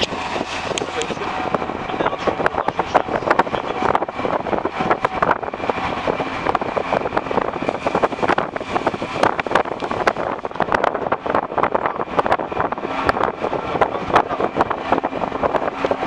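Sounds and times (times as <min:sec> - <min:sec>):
moving vehicle noise: 0:00.0 - 0:16.0
wind buffeting microphone: 0:00.0 - 0:16.0
crackles and knocks: 0:07.5 - 0:11.4.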